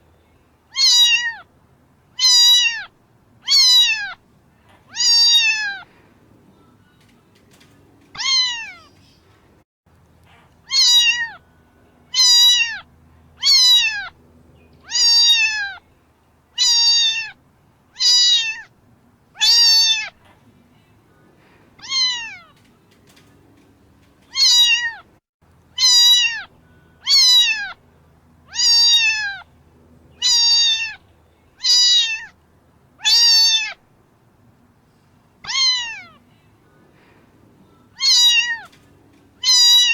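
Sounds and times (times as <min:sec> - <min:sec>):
cat meowing: 0:00.7 - 0:01.5, 0:02.2 - 0:04.2, 0:04.9 - 0:05.9, 0:08.2 - 0:08.9, 0:10.6 - 0:11.4, 0:12.1 - 0:14.1, 0:14.8 - 0:15.8, 0:16.6 - 0:17.4, 0:18.0 - 0:18.7, 0:19.4 - 0:20.2, 0:21.8 - 0:22.6, 0:24.3 - 0:25.1, 0:25.8 - 0:27.8, 0:28.5 - 0:29.5, 0:30.2 - 0:31.0, 0:31.6 - 0:32.4, 0:33.0 - 0:33.8, 0:35.4 - 0:36.3, 0:37.9 - 0:38.8, 0:39.4 - 0:39.9.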